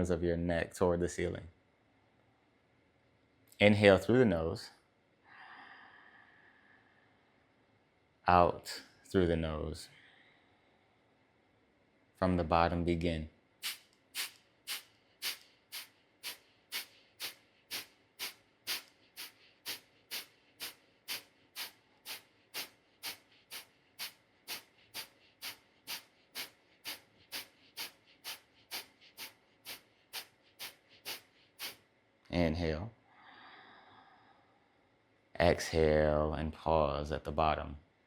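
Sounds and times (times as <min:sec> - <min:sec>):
forceful nasal exhales: 0:13.6 - 0:31.8.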